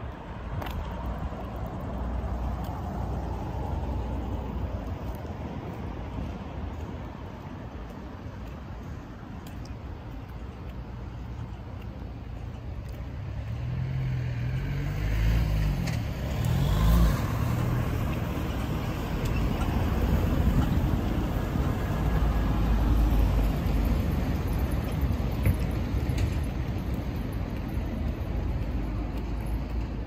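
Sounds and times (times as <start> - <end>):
traffic rumble: 0.0 - 30.0
car driving past: 13.6 - 19.6.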